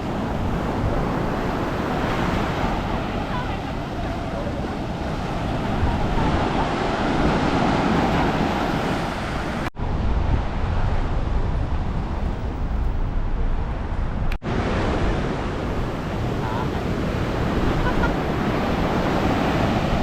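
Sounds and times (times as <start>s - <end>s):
wind on microphone: 0.0s - 20.0s
heavy low rumble: 9.8s - 14.4s.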